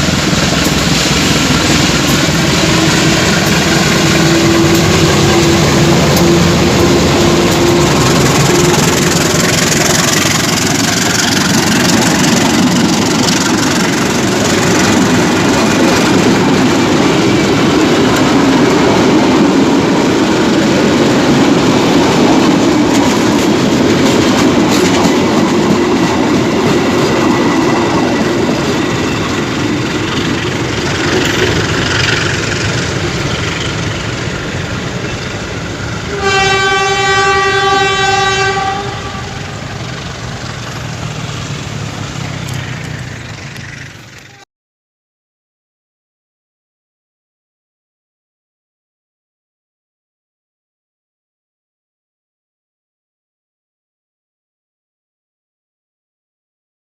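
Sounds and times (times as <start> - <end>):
train wheels rumbling on rails: 0.0 - 44.4
train horn blast: 0.6 - 9.7, 36.0 - 39.6.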